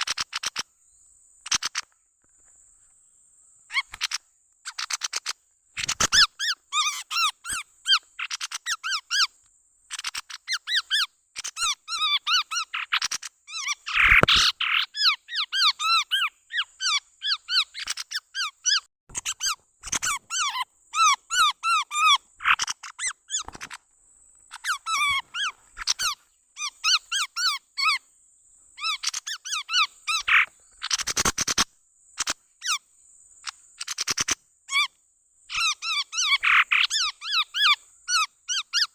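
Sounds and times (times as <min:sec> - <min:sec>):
birds chattering calls: 0:03.7 - 0:23.8, 0:24.4 - 0:28.1, 0:28.8 - 0:32.8, 0:35.5 - 0:38.9.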